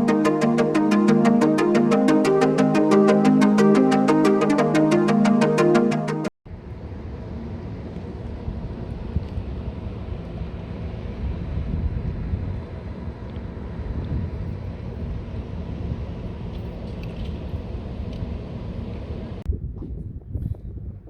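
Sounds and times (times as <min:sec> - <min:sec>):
wind rumbling on microphone: 0:06.5 - 0:21.0.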